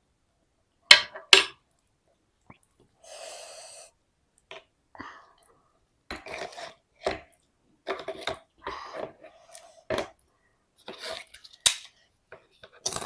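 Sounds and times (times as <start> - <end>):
spoon scraping a plate: 6.1 - 6.8, 7.9 - 8.4.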